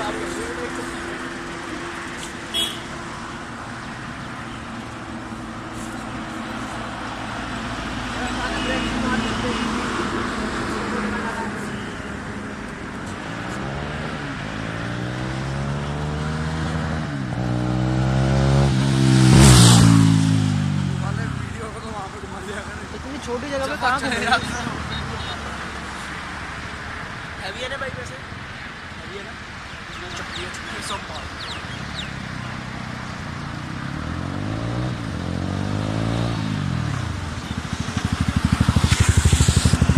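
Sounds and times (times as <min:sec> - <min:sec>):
motorcycle engine accelerating past: 0:33.3 - 0:39.9.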